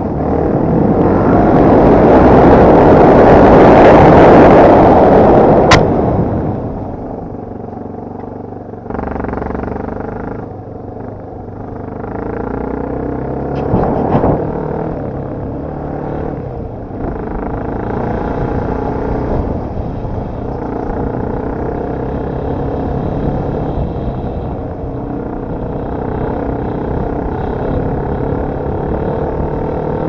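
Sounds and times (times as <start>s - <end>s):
dirt bike engine revving: 8.9s - 10.4s.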